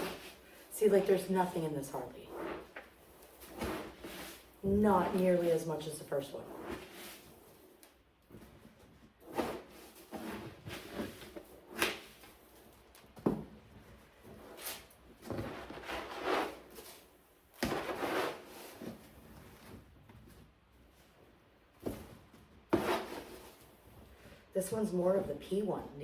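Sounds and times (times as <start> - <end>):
scoop scraping cat litter: 0.0 - 7.7, 9.2 - 11.8, 15.4 - 19.2, 22.7 - 23.6.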